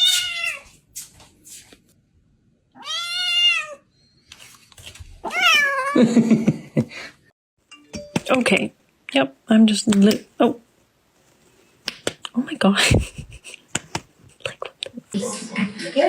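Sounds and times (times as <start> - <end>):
cat meowing: 0.0 - 0.7, 2.8 - 3.9, 5.2 - 6.0.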